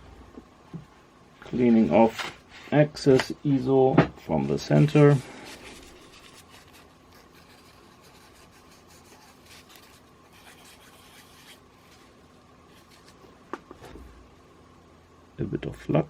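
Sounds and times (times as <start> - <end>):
scratchy rubbing: 5.5 - 13.2.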